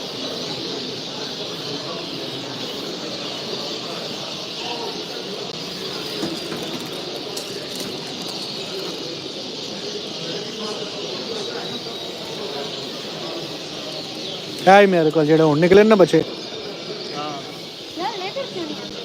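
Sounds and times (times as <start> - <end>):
flock of small birds chattering: 0.0 - 19.0.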